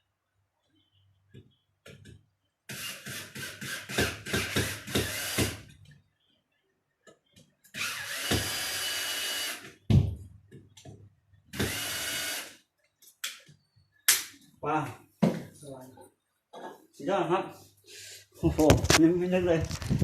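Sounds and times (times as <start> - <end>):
electric drill boring into wall: 2.7 - 5.6, 7.8 - 9.7, 11.6 - 12.6.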